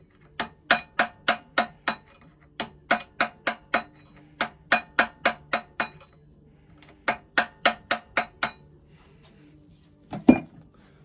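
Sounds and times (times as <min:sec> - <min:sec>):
hammer tapping on metal: 0:00.3 - 0:06.2, 0:06.8 - 0:08.7.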